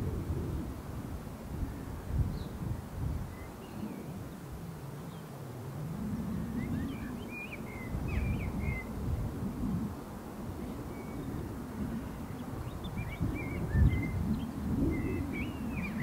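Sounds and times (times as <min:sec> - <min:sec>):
small birds chirping: 0:06.4 - 0:09.0, 0:10.6 - 0:16.0.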